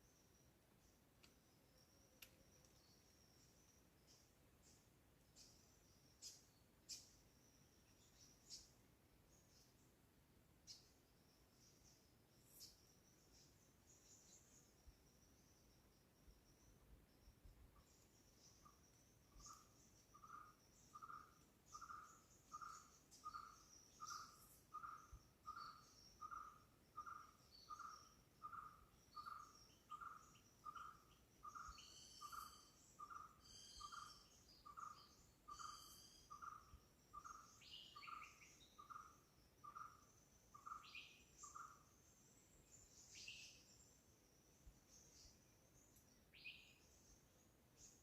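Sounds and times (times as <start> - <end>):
insects: 0.0 - 48.0
small birds chirping and trilling: 0.0 - 48.0.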